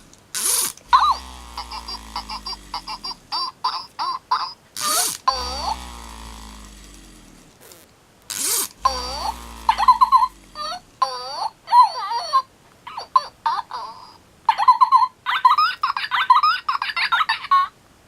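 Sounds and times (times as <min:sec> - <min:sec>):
electronic toy chirps and babble: 0:00.4 - 0:06.3, 0:08.4 - 0:13.2.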